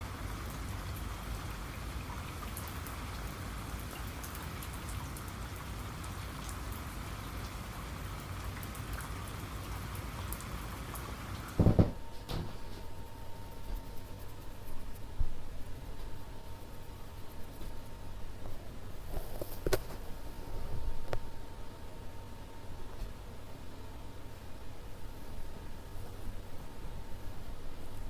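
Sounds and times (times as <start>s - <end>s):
steady rain-like noise: 0.0s - 28.0s
loud dull thump: 11.6s - 12.9s
faint ticks: 12.2s - 21.4s.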